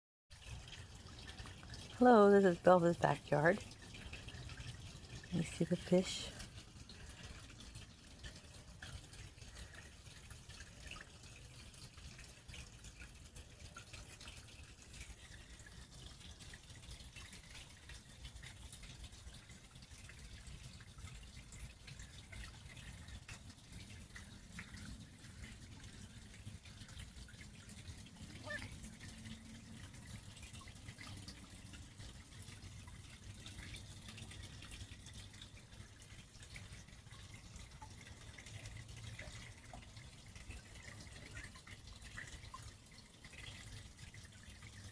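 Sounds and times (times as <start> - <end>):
water trickling and dripping: 0.3 - 44.9.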